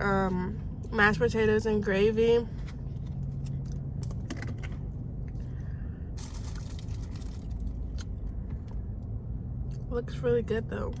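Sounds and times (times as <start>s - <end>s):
steady low hum: 0.0s - 11.0s
crinkling rustle: 6.2s - 7.8s.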